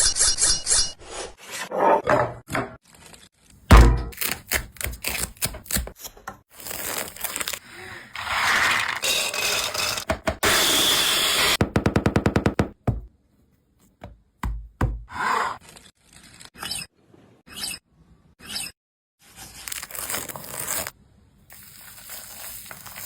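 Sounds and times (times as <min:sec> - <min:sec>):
heavy thunk: 0:03.7 - 0:04.1.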